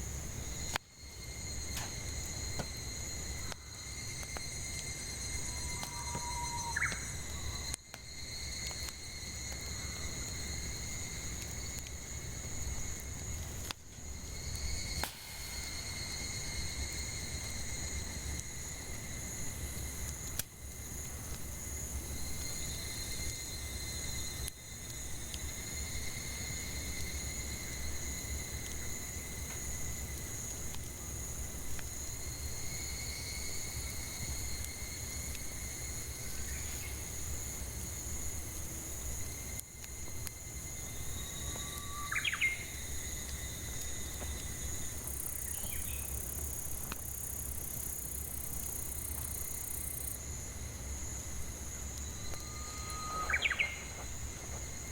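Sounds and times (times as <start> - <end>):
campfire crackling: 0.0 - 54.9
cicadas droning: 0.0 - 54.9
rising bird call: 5.6 - 7.6, 52.4 - 53.9.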